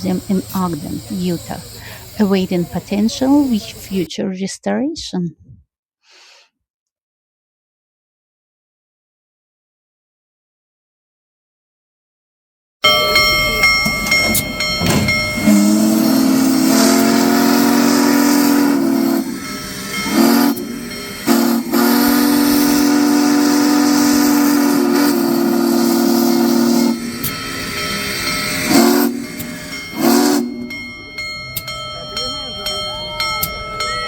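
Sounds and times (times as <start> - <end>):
steam hissing: 0.0 - 4.1, 13.0 - 34.0
steam locomotive whistle: 12.8 - 34.0.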